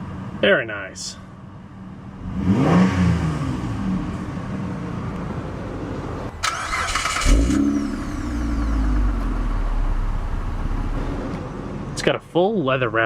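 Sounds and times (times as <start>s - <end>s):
car engine idling: 3.7s - 13.0s.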